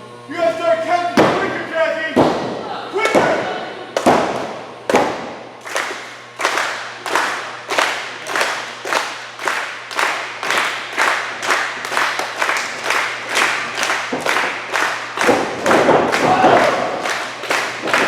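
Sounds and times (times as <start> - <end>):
rhythmic echoing slaps: 1.2 - 18.0
crowd cheering: 2.5 - 4.4, 5.7 - 18.0.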